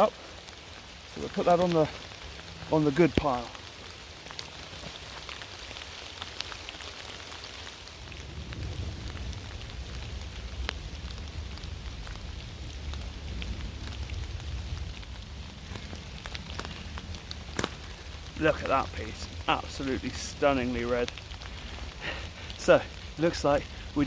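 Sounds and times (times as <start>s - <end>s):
steady rain falling: 0.0s - 24.0s
low rumble: 8.0s - 24.0s.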